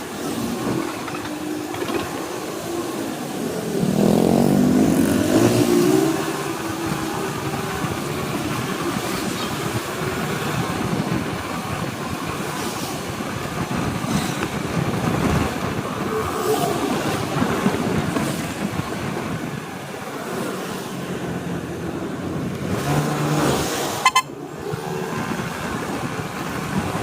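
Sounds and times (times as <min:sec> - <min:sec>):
road and wind noise: 0:00.0 - 0:27.0
motorcycle engine accelerating: 0:03.4 - 0:09.1.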